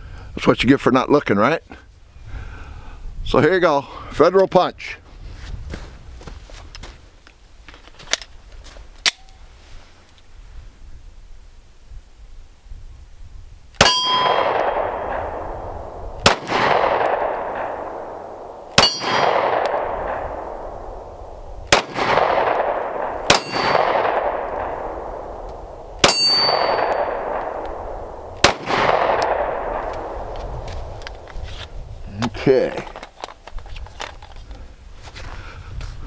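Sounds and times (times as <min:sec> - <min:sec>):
steel target ringing clang: 0:13.8 - 0:15.5, 0:18.8 - 0:20.2, 0:21.8 - 0:24.8, 0:26.0 - 0:27.4
pistol shots: 0:13.8 - 0:21.1, 0:21.7 - 0:30.3.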